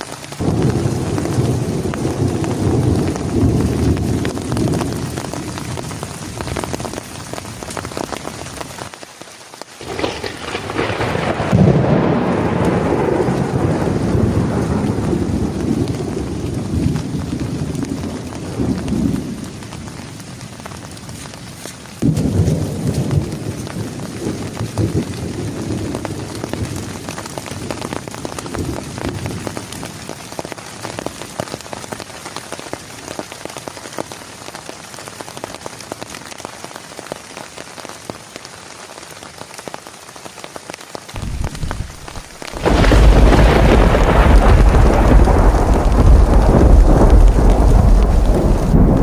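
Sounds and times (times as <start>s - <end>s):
heavy rain: 0.0s - 49.0s
close thunderclap: 0.4s - 6.5s, 9.8s - 19.5s, 22.0s - 29.4s, 41.2s - 49.0s
low thunder rumbling: 0.4s - 6.9s, 9.8s - 20.0s, 22.0s - 29.4s, 41.2s - 49.0s.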